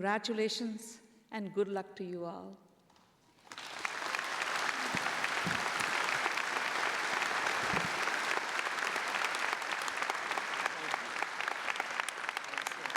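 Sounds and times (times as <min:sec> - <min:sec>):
audience applauding: 0:03.4 - 0:12.9.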